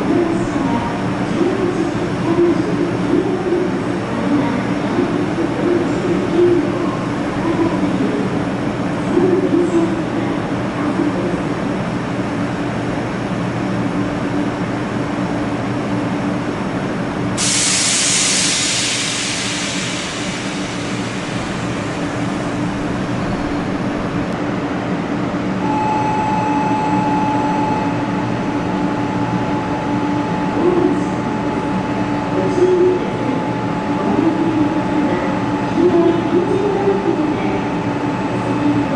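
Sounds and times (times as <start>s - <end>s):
train electrical hum: 0.0s - 38.9s
loud hiss: 17.4s - 22.0s
steady higher tone: 25.6s - 35.0s.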